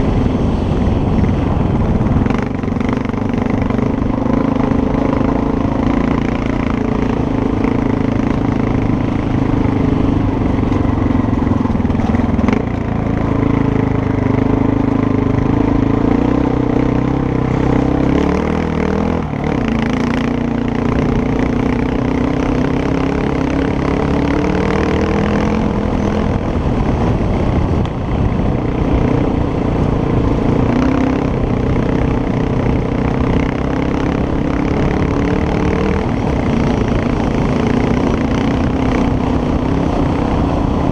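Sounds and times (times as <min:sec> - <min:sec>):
motorcycle engine running: 0:00.0 - 0:40.9
rushing noise: 0:00.0 - 0:40.9.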